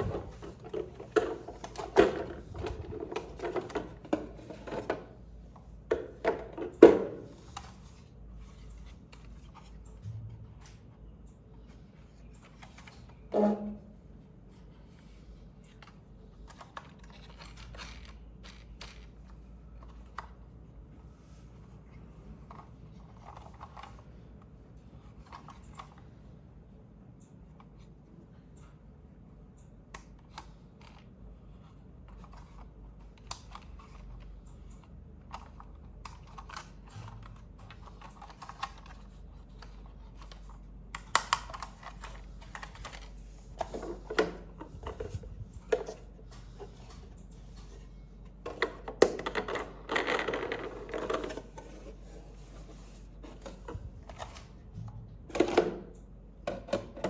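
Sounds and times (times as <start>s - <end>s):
plastic parts clicking: 15.7s - 20.4s, 34.7s - 46.1s.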